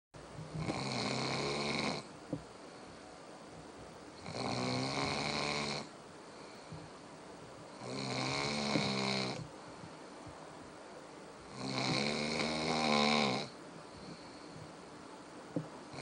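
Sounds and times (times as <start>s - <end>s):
quiet breathing: 0.2s - 16.0s
dog snoring: 0.5s - 2.1s, 4.2s - 5.9s, 7.7s - 9.5s, 11.5s - 14.3s.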